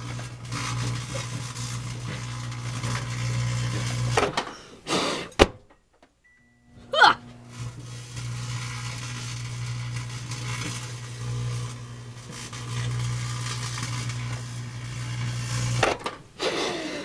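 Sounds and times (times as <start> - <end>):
crackling in microwave: 0.0 - 4.5, 7.4 - 16.4
microwave oven hum: 6.3 - 16.1.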